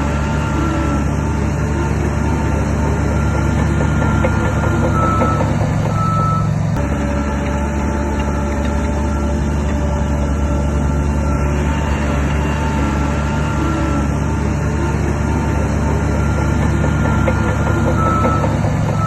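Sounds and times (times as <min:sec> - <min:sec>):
diesel engine running: 0:00.0 - 0:19.0
reverse warning alarm beeping: 0:03.0 - 0:06.5, 0:15.9 - 0:19.0.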